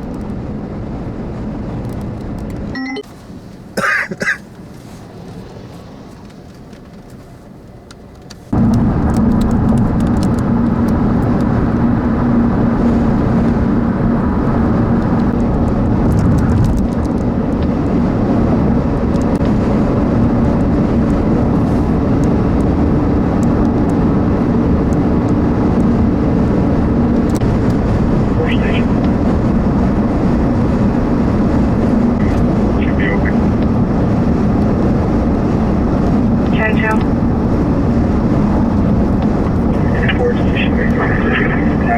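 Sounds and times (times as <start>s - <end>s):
low hum and rumble: 0.0s - 41.9s
vehicle noise: 0.0s - 41.9s
wind noise: 8.5s - 41.9s.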